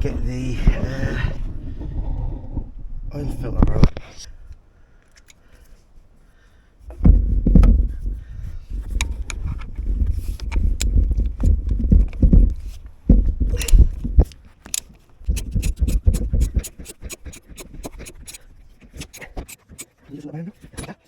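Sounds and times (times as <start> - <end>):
socket ratchet clicking: 14.6 - 18.4.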